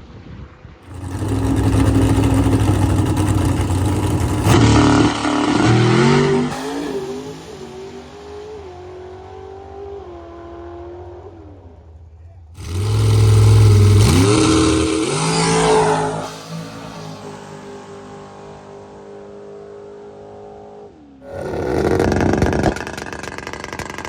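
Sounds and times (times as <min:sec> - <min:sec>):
drag car engine launching: 0:00.9 - 0:09.2, 0:12.6 - 0:17.2, 0:21.2 - 0:24.0.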